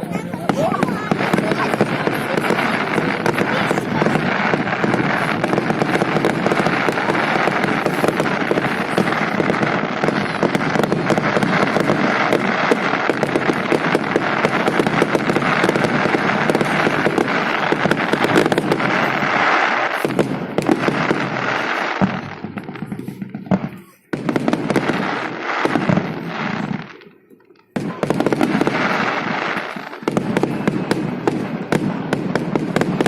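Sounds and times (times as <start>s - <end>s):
fireworks crackling and popping: 0.0s - 33.0s.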